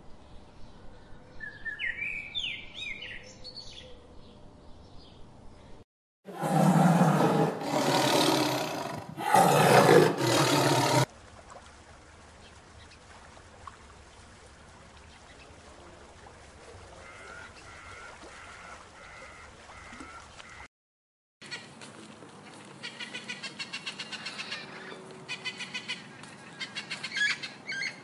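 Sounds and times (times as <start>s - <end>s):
serval growling and hissing: 6.3s - 11.1s.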